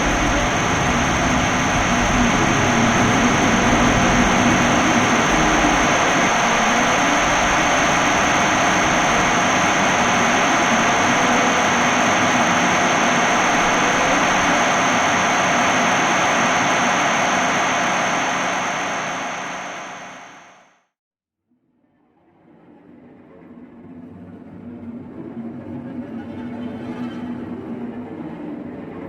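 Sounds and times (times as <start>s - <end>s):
noise drone hiss and rumble: 0.0s - 20.6s
thin high whine: 0.0s - 20.7s.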